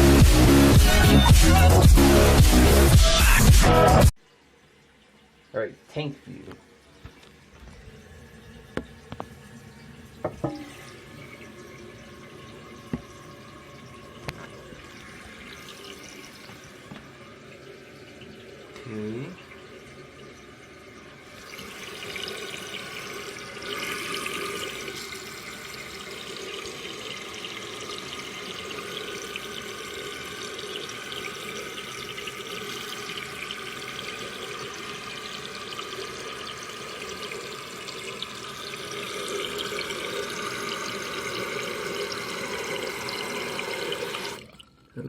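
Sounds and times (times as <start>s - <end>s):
toilet tank refilling with hissing water: 0.0s - 45.0s.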